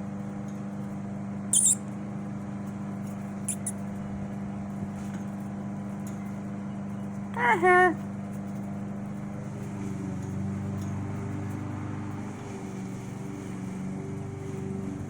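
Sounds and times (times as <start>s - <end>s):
low machine hum: 2.6s - 15.0s.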